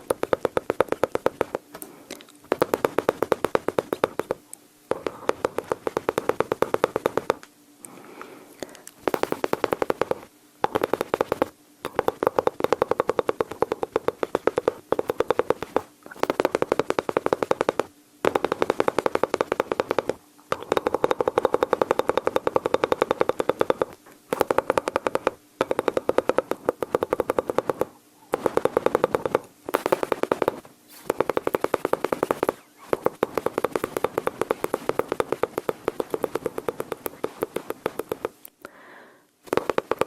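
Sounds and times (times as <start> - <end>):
mouth imitating machine-gun fire: 9.0 - 38.4.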